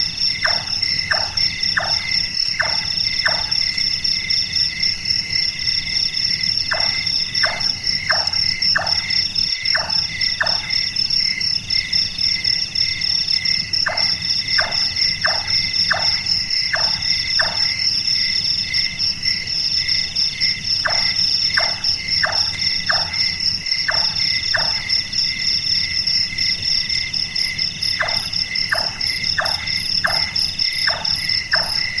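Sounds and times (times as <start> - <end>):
night insects chorus: 0.0 - 32.0
nightjar hollow chonk calls: 0.4 - 3.7, 6.7 - 10.8, 13.8 - 17.7, 27.9 - 32.0.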